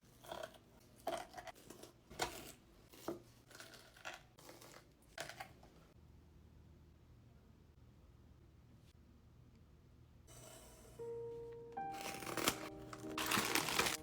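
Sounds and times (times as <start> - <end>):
crinkling and tearing: 11.8 - 14.0.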